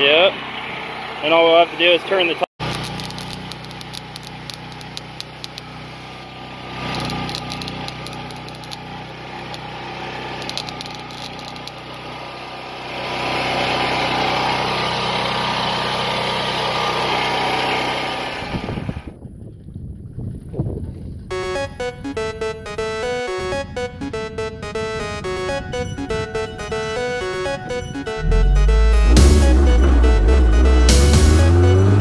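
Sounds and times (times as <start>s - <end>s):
clicks: 2.6s - 5.7s, 6.9s - 8.8s, 10.4s - 12.0s
small engine running: 2.6s - 19.1s.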